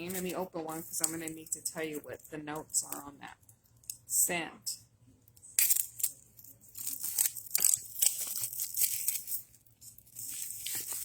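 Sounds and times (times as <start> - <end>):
packaging tearing and rustling: 5.6 - 11.0.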